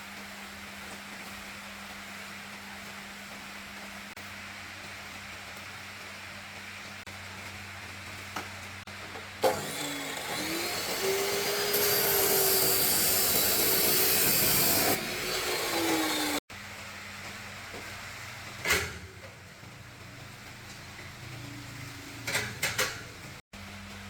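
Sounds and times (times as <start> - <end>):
power tool motor whining: 9.4 - 16.4.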